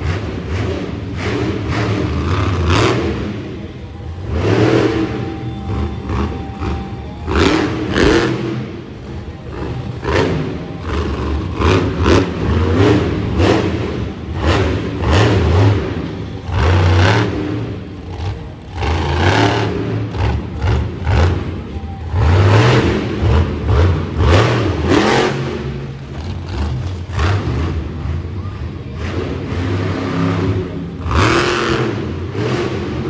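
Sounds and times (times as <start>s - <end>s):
monster truck engine revving: 0.0s - 33.0s.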